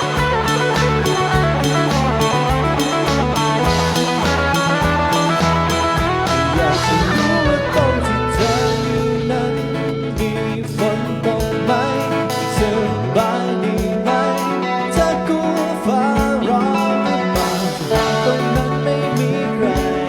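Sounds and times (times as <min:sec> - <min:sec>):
drum hits: 0:00.0 - 0:09.4
band playing instrumental: 0:00.0 - 0:20.0
bending guitar lead: 0:00.0 - 0:20.0.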